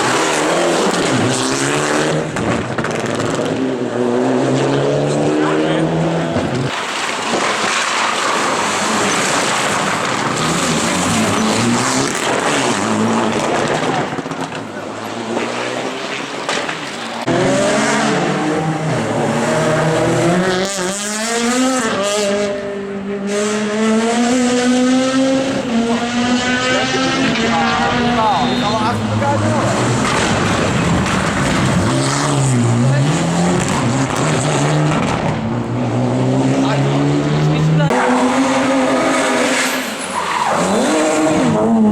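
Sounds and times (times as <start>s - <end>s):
car engine shifting gears: 0.0s - 41.9s
rally car engines revving: 0.0s - 41.9s
tyres squealing and skidding: 5.3s - 20.4s, 25.4s - 34.9s, 36.6s - 41.9s.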